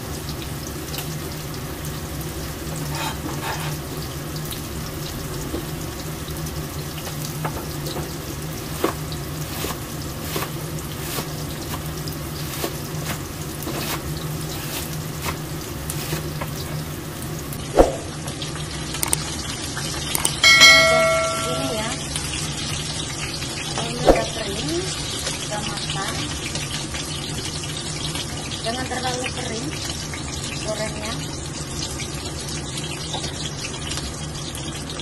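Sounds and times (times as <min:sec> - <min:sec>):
tofu sizzling in oil: 0:00.0 - 0:35.0.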